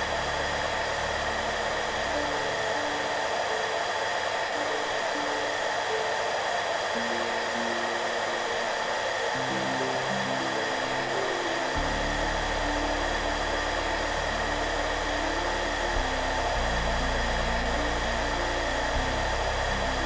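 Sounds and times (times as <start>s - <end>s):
hairdryer blowing: 0.0s - 20.0s
soft background music: 0.0s - 20.0s.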